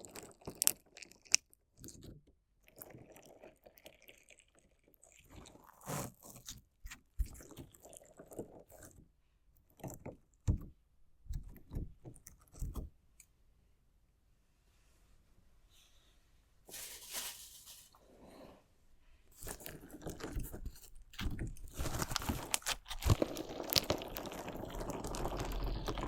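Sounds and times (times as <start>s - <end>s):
crunchy slime crunching: 0.0s - 2.1s, 2.7s - 9.0s, 19.4s - 26.0s.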